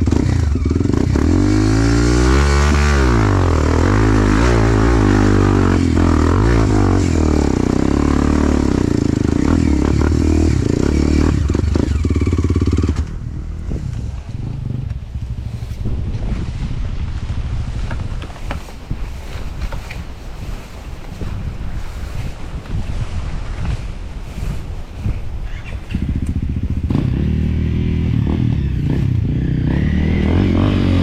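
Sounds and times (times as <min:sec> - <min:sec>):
dirt bike engine revving: 0:00.0 - 0:13.9, 0:26.0 - 0:31.0.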